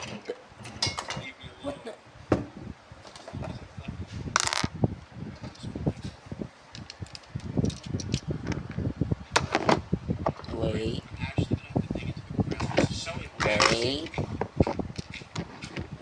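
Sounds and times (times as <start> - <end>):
rustling scrape: 3.0 - 4.7.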